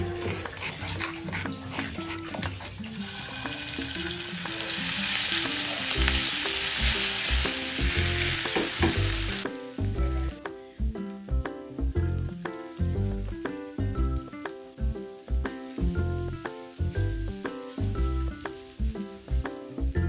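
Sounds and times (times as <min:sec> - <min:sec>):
spatula stirring in wok: 0:00.0 - 0:05.7, 0:14.5 - 0:19.8
paste sizzling in hot oil: 0:00.0 - 0:20.0.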